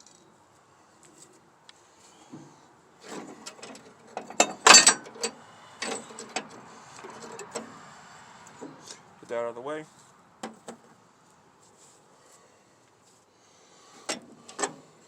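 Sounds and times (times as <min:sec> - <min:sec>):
metal tools clicking and knocking: 0:03.4 - 0:07.6.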